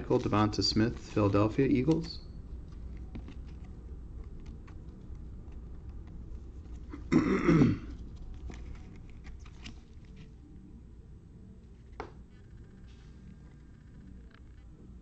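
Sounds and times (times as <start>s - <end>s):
trading cards being handled: 0.0s - 7.1s, 7.9s - 10.5s
person coughing: 6.9s - 7.9s.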